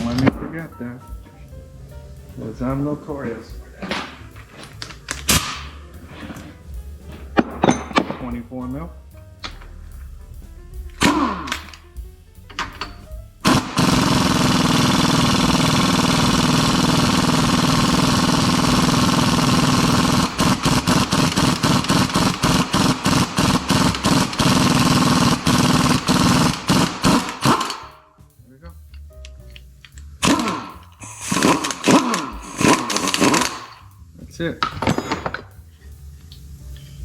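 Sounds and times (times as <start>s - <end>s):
impact wrench hammering: 7.4s - 8.4s, 10.8s - 28.0s, 30.2s - 33.9s.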